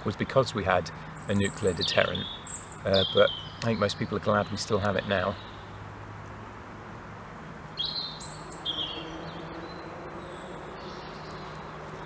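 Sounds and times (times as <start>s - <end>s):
songbird chirping: 0.0s - 5.9s, 6.9s - 12.0s.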